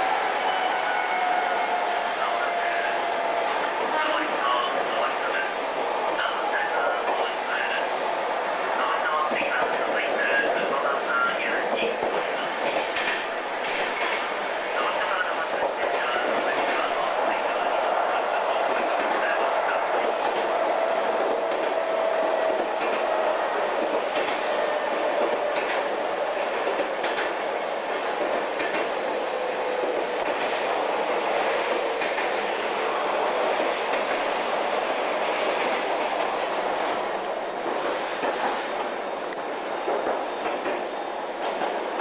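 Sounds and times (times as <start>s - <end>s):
train rumble inside car: 0.0s - 42.0s
rail-joint clicks: 9.1s - 32.6s, 33.4s - 34.4s, 35.2s - 42.0s.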